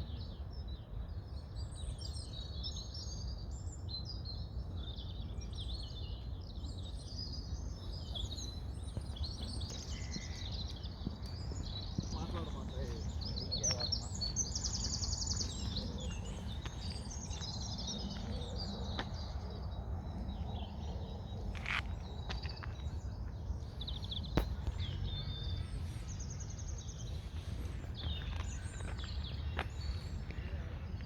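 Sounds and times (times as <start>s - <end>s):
songbirds chirping: 0.0s - 31.0s
steady low rumble: 7.4s - 31.0s.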